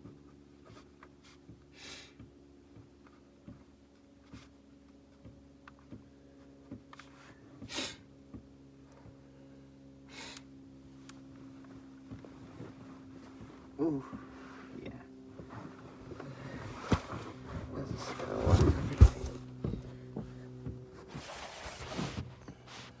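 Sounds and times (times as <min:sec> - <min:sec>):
steady low hum: 0:00.0 - 0:23.0
person sniffing: 0:07.7 - 0:08.0, 0:10.1 - 0:10.4.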